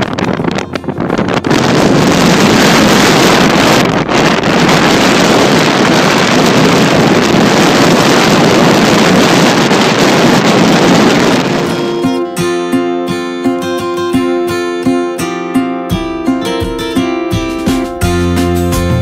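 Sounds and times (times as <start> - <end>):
strong wind on microphone: 0.0 - 12.5.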